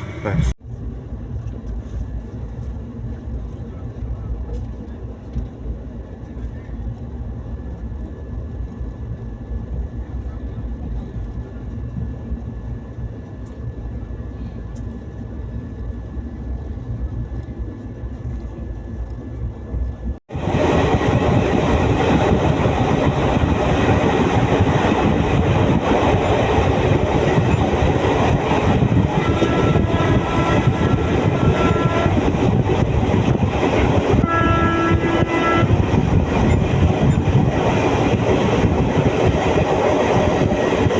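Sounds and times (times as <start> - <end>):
rail noise with wheel clatter: 0.0 - 40.9
train rumbling on rails: 0.0 - 40.9
train horn: 29.0 - 32.4, 33.9 - 36.0.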